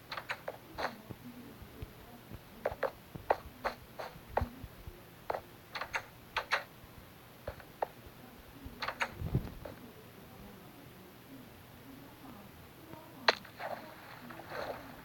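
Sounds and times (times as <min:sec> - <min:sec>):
sharp taps and clicks: 0:00.0 - 0:01.0, 0:05.3 - 0:06.7
low steady background noise: 0:00.0 - 0:15.0.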